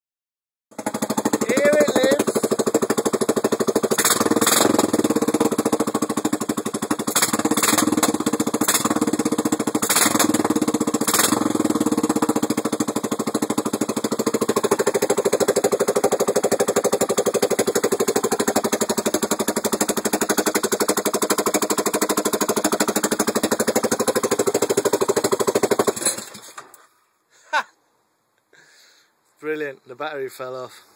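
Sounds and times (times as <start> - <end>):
motorcycle engine firing: 0.8 - 26.7
sharp engine cracks: 9.8 - 10.5, 24.7 - 26.8.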